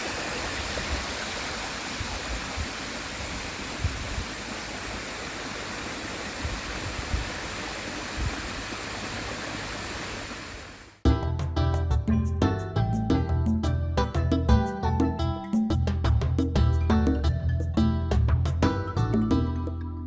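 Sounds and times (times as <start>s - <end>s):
small waterfall rushing: 0.0s - 11.0s.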